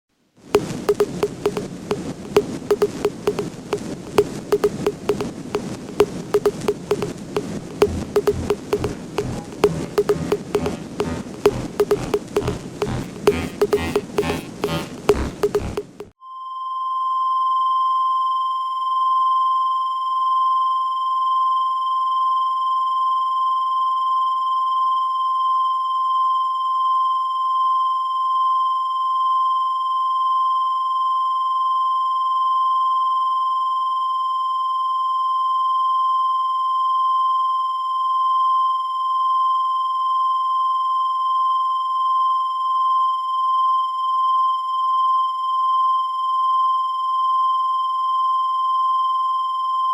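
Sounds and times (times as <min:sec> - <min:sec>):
high-pitched electronic tone: 0:00.6 - 0:03.5, 0:04.1 - 0:16.1.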